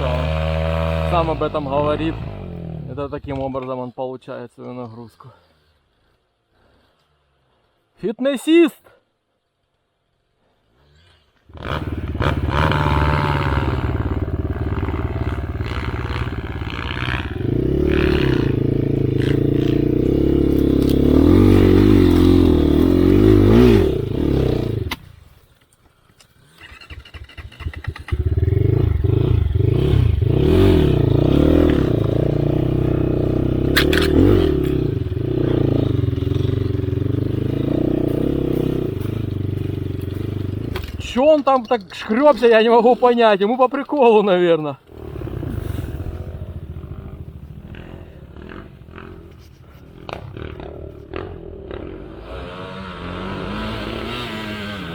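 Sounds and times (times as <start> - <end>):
dirt bike engine revving: 0.0 - 3.0, 11.5 - 25.2, 26.4 - 54.9.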